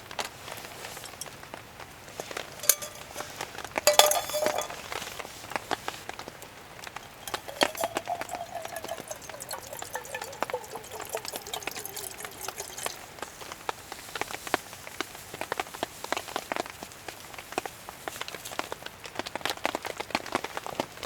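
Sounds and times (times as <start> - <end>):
raindrops ticking: 2.2 - 4.8, 7.0 - 13.0.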